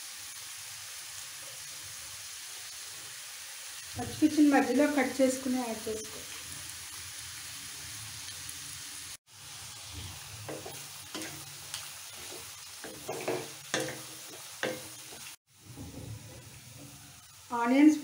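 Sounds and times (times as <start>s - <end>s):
vegetables sizzling in hot oil: 0.0s - 18.0s
wooden spatula scraping a pan: 10.0s - 17.3s.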